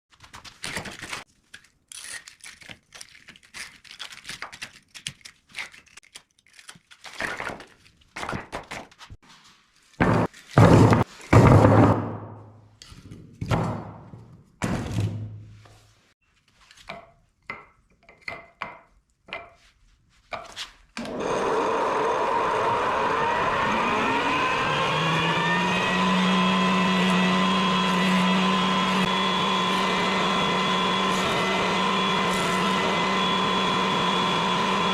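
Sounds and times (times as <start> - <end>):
wooden pieces knocking: 16.8 - 19.6
power tool motor whine: 21.0 - 34.9.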